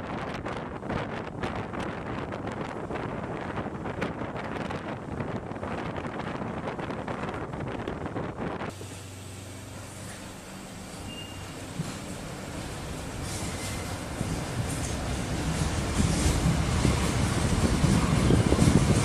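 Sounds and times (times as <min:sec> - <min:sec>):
wind buffeting microphone: 0:00.0 - 0:08.8, 0:12.6 - 0:19.0
train running on track: 0:00.0 - 0:19.0.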